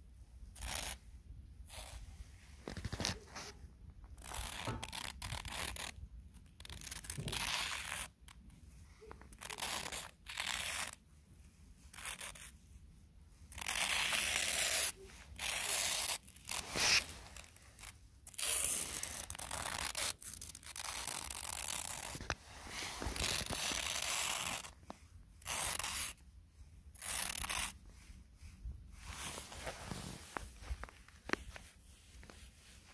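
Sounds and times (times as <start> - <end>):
footsteps crunching in snow: 16.6 - 17.4.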